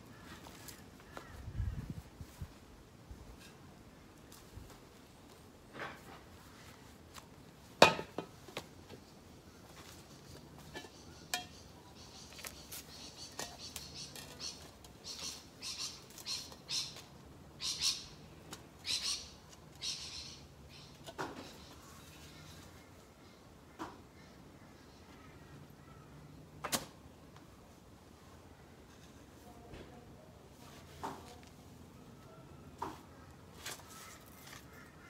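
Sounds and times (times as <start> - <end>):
birds squawking and chirping: 10.2 - 17.0, 18.8 - 22.7.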